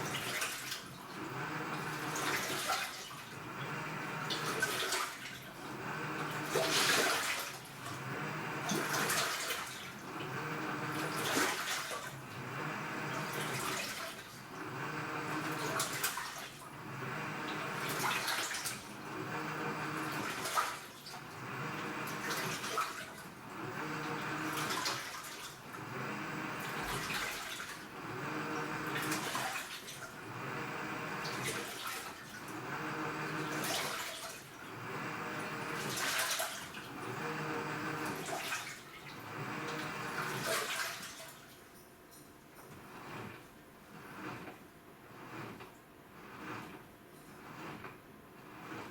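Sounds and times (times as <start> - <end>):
water and laundry sloshing: 0.0 - 3.6, 4.2 - 19.2, 19.8 - 44.7
low motor hum: 1.2 - 2.3, 3.4 - 4.5, 5.6 - 6.7, 7.8 - 9.1, 10.0 - 11.2, 12.2 - 13.6, 14.5 - 15.7, 16.8 - 18.0, 18.9 - 20.2, 21.4 - 22.2, 23.4 - 24.7, 25.7 - 27.1, 27.9 - 29.2, 30.2 - 31.4, 32.4 - 33.7, 34.7 - 35.9, 36.9 - 38.2, 39.2 - 40.3.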